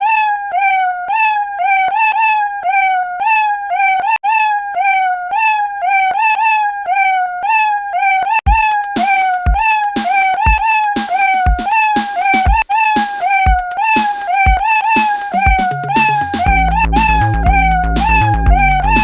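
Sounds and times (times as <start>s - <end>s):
drum beat: 8.5s - 19.0s.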